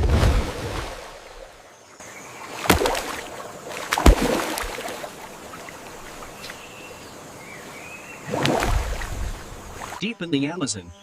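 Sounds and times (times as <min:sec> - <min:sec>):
sharp water splashes: 0:00.0 - 0:01.6, 0:02.2 - 0:06.8, 0:08.1 - 0:10.0
water sloshing and lapping: 0:00.0 - 0:10.0.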